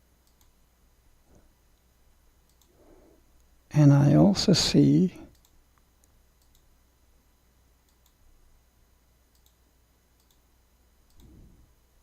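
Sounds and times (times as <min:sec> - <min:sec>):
computer mouse clicks: 0:00.2 - 0:00.6, 0:02.4 - 0:02.8, 0:05.3 - 0:06.7, 0:07.8 - 0:08.2, 0:09.3 - 0:09.6, 0:10.2 - 0:11.5.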